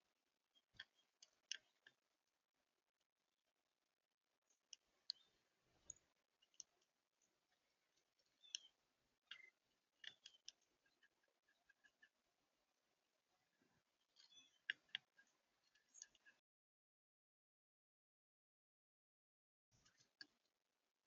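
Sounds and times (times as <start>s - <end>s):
songbird chip notes and calls: 4.5s - 7.3s, 7.9s - 12.2s, 13.5s - 16.4s.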